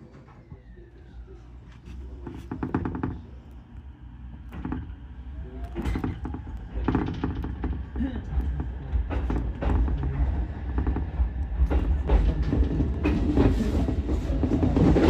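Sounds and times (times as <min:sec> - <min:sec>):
railcar low rumble: 0:00.0 - 0:15.0
wheels knocking over rail joints: 0:05.7 - 0:15.0.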